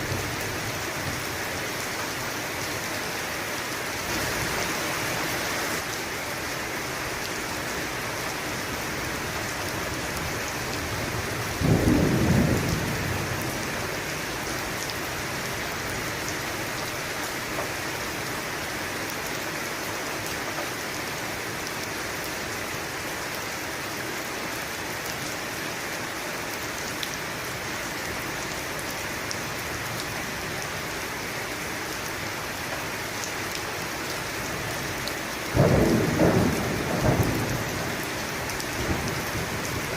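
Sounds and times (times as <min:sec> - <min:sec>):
steady rain: 0:00.0 - 0:39.9
thunderclap rumbling: 0:11.5 - 0:13.8, 0:35.6 - 0:38.0.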